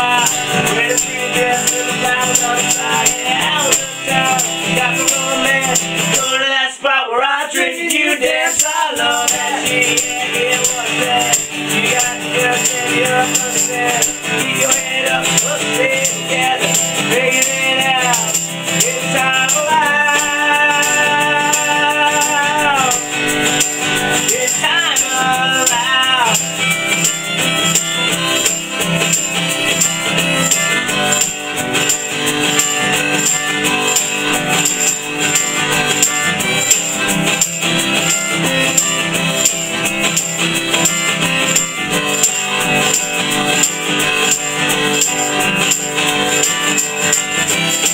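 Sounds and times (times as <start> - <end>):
shaker ticking: 0.0 - 6.3, 7.6 - 47.9
strummed acoustic guitar: 0.0 - 47.9.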